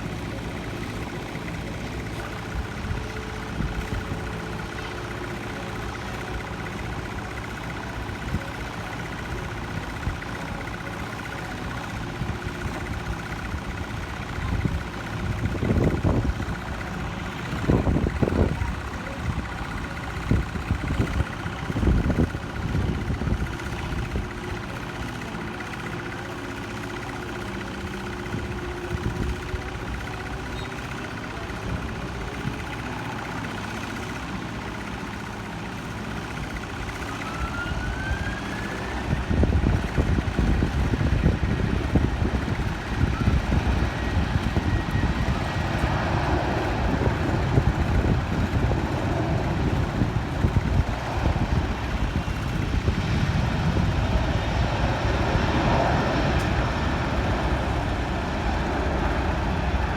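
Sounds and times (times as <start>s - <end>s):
distant jet engines whining: 0.0s - 59.9s
wind buffeting microphone: 13.4s - 24.6s, 36.8s - 59.9s.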